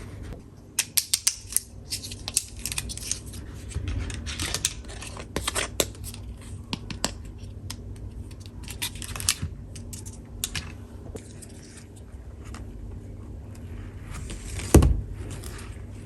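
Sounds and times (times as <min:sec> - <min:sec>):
toy tool pieces clicking and tapping: 0:00.8 - 0:03.2.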